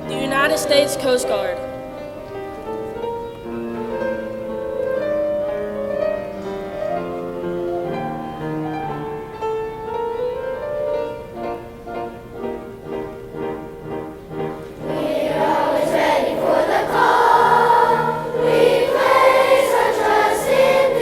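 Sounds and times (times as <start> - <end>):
piano: 0.0 - 21.0.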